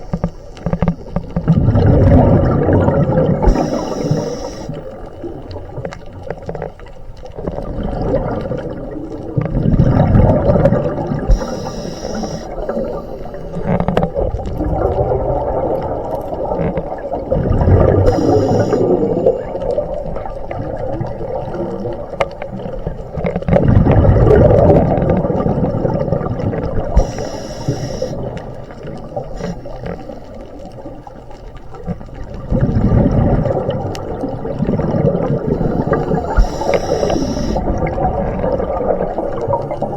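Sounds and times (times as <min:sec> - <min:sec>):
regulator inhale hiss: 0:00.0 - 0:01.4, 0:03.4 - 0:05.0, 0:11.3 - 0:13.8, 0:18.0 - 0:19.5, 0:26.9 - 0:28.4, 0:29.2 - 0:30.3, 0:35.5 - 0:37.7
exhaled bubbles rumbling underwater: 0:00.0 - 0:39.9.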